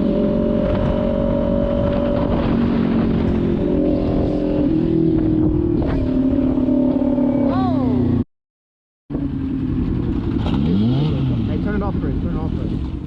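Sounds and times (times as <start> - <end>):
motorcycle engine running: 9.1 - 13.0.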